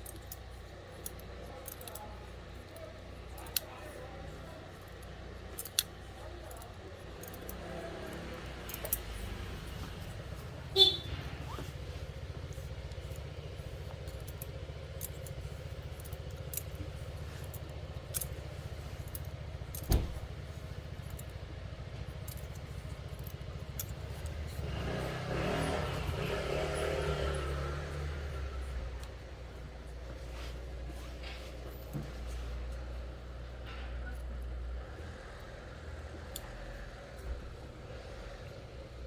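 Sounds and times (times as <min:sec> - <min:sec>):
small clicks: 0:00.0 - 0:04.0, 0:04.7 - 0:29.7
rumble with shifting pitch: 0:07.6 - 0:31.2.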